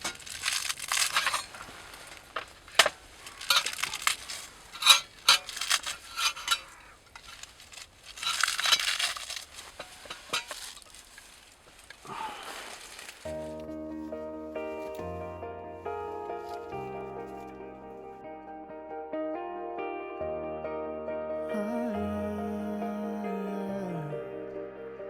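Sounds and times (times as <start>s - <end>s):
rustling: 0.0s - 18.1s
cookware clinking and clattering: 9.8s - 10.6s.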